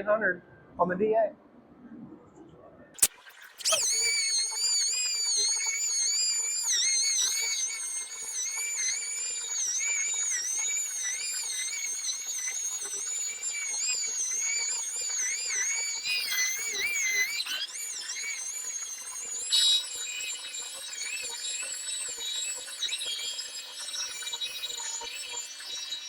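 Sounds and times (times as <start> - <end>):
faint low hum: 0.0 - 3.0
air sander whining: 3.0 - 20.4.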